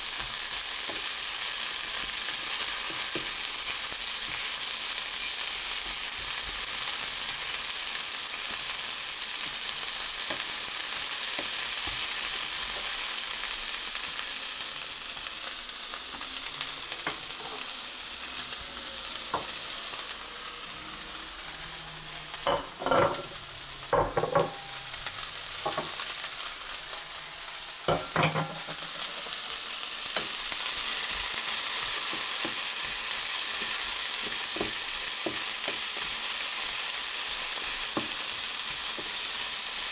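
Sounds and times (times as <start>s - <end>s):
food sizzling in a hot pan: 0.0s - 39.9s
utensil knocking against pan: 22.5s - 23.4s, 24.0s - 24.7s.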